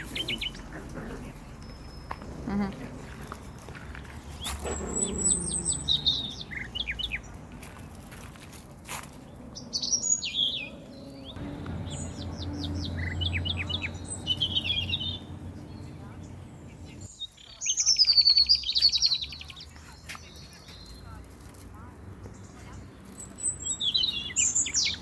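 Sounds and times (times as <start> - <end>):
songbirds singing: 0.0 - 8.2, 8.9 - 25.0
low steady hum: 11.4 - 17.1.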